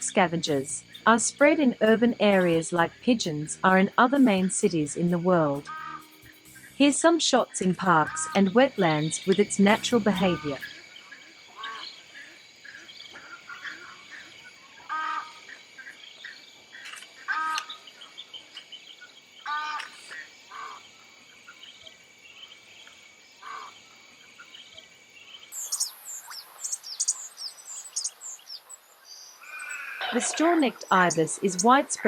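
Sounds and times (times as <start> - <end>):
small birds chirping: 0.0 - 32.0
high insect buzz: 0.5 - 12.8, 14.8 - 32.0
harsh bird calls: 5.6 - 20.9, 25.5 - 32.0.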